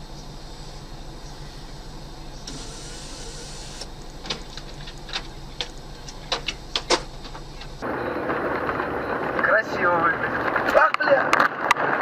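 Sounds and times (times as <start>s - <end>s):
car interior hum: 0.0s - 8.0s.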